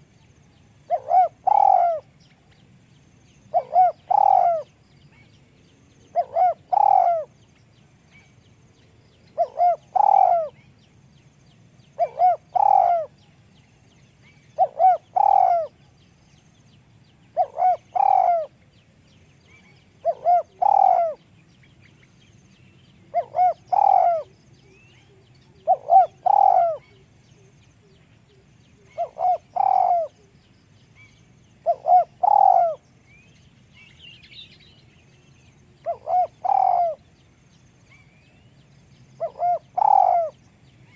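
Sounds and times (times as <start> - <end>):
dove cooing: 0.9 - 2.1, 3.5 - 4.8, 6.1 - 7.4, 9.2 - 10.6, 12.0 - 13.2, 14.5 - 15.9, 17.3 - 18.6, 20.0 - 21.3, 23.1 - 30.4, 31.6 - 32.8, 35.8 - 37.0, 39.2 - 40.4.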